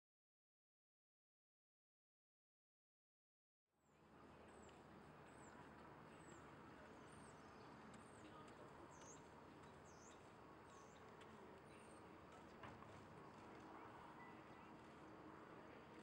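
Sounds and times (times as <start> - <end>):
outdoor background hush: 3.8 - 16.0
small bird chirping: 6.2 - 11.9.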